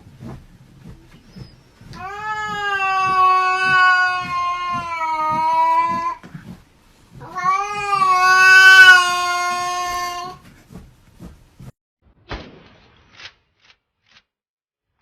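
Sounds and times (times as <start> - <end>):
cat meowing: 2.0 - 6.2, 7.2 - 10.4.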